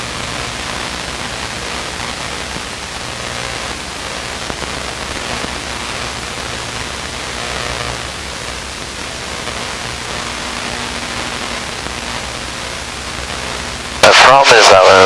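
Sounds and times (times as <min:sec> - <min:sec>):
aircraft cabin engine and airflow hiss: 0:11.3 - 0:15.0.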